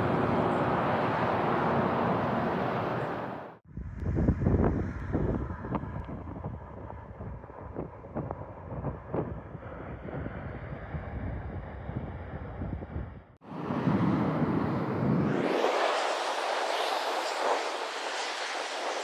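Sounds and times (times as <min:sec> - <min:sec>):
jet engines roaring: 0:00.0 - 0:03.6, 0:13.4 - 0:19.0
wind buffeting microphone: 0:00.0 - 0:15.8.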